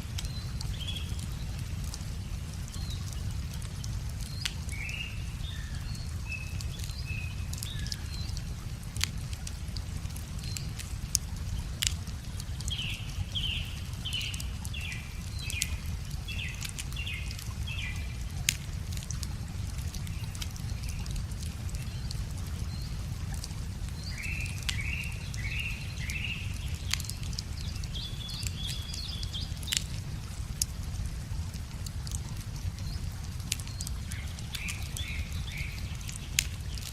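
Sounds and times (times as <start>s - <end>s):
wood fire crackling and popping: 0.0s - 5.4s, 6.1s - 36.9s
steady low rumble: 0.0s - 36.9s
songbird singing falling notes: 33.6s - 36.9s.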